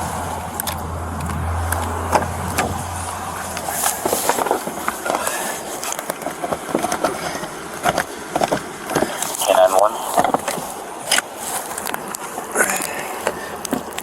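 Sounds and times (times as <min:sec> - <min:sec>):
low engine hum: 0:00.0 - 0:07.7.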